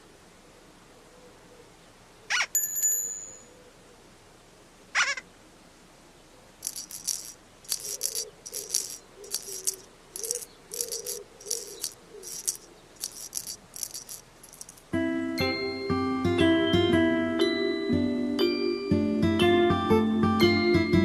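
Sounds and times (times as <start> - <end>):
light glockenspiel music: 2.6 - 3.6, 15.0 - 19.7
shaker rattling: 6.6 - 15.0.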